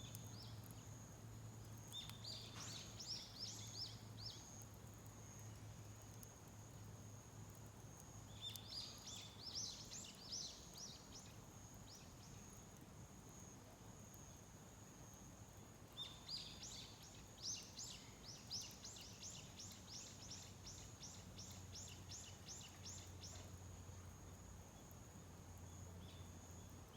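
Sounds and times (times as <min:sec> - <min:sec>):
songbird chirping: 0:01.8 - 0:06.2, 0:08.2 - 0:12.6, 0:15.9 - 0:23.7.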